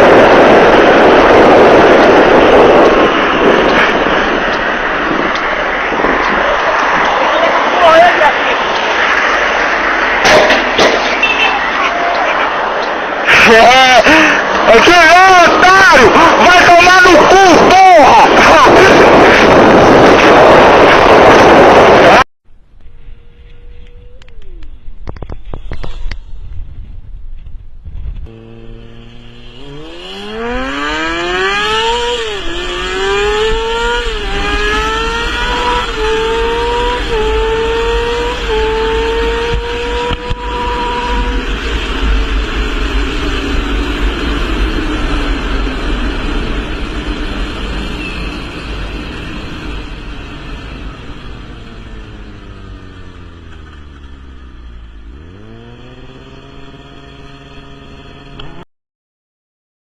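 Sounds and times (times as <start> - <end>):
motorcycle engine accelerating: 27.9 - 58.6.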